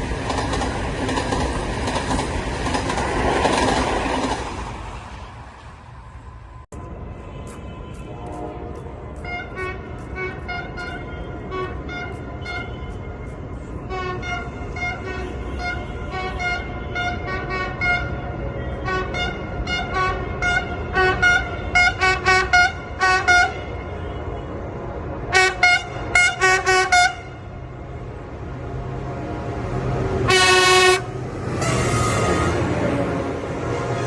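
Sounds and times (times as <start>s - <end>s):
locomotive horn toots: 7.3s - 24.6s, 25.3s - 27.6s, 30.3s - 33.0s.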